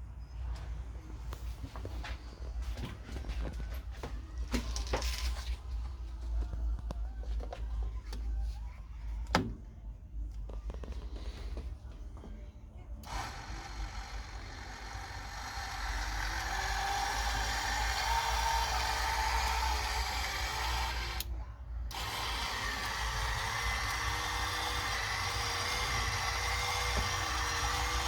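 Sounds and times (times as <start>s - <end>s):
metal lathe motor whine: 13.1s - 21.2s, 21.9s - 28.0s.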